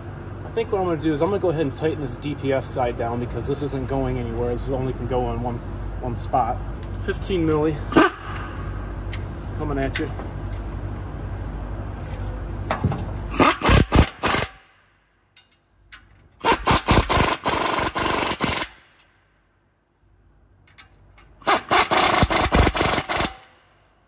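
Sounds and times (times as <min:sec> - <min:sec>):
ratchet clicking: 0:13.3 - 0:14.6, 0:15.4 - 0:19.1, 0:20.7 - 0:23.6.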